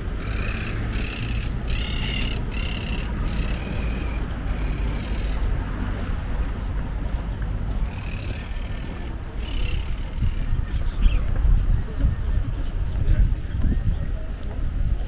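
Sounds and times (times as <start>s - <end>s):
steady low rumble: 0.0s - 15.0s
bird squawking: 0.2s - 5.4s, 7.8s - 11.3s.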